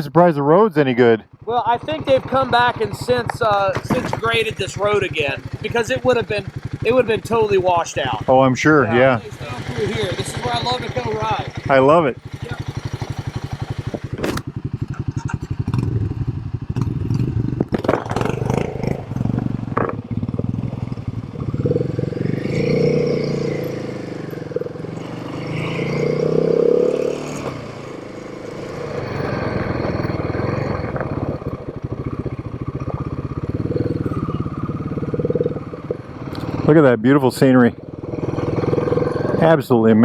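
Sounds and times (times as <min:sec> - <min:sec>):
motorcycle engine running: 0:00.0 - 0:40.0
sharp knocks and rattles: 0:01.8 - 0:08.2, 0:16.7 - 0:21.6.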